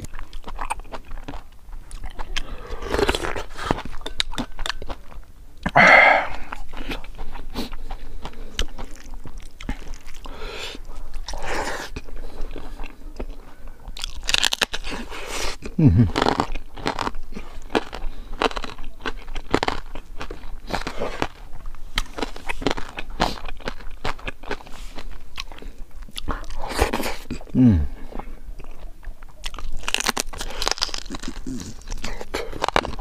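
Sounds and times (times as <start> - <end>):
chewing crispy pork: 0.0 - 33.0
person humming: 5.7 - 6.5, 15.7 - 16.2, 27.6 - 28.0.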